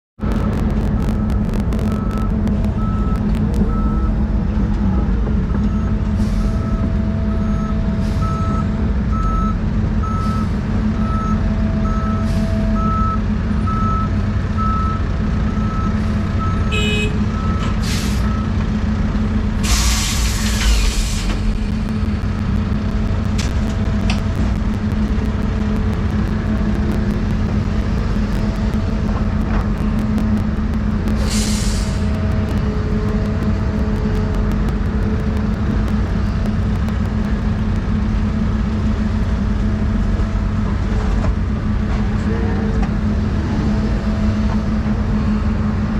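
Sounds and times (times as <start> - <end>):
truck reversing alarm beeping: 0.2 - 18.8
excavator diesel engine running: 0.2 - 45.9
loud air brake hiss: 19.6 - 21.4, 31.2 - 32.0.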